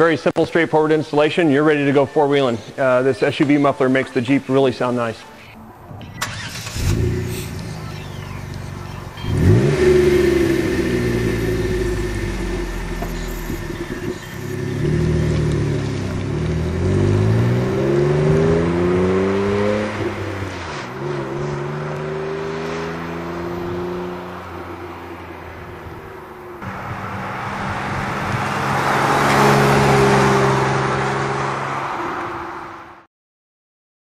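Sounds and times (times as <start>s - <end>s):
car engine revving: 6.2s - 32.0s.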